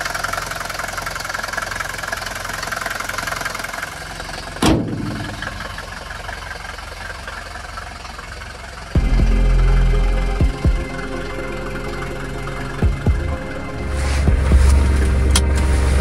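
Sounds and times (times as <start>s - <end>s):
diesel engine idling: 0.0s - 16.0s
loud thump: 4.6s - 5.7s.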